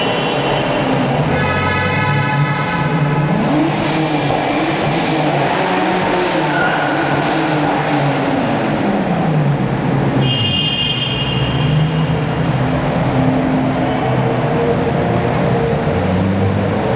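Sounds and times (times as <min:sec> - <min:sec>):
car engines revving in tunnel: 0:00.0 - 0:16.9
high whistle: 0:10.2 - 0:11.8.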